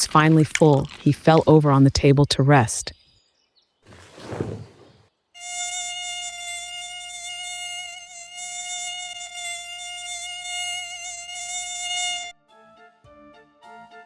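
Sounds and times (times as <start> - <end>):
mosquito buzzing whine: 5.4 - 12.4.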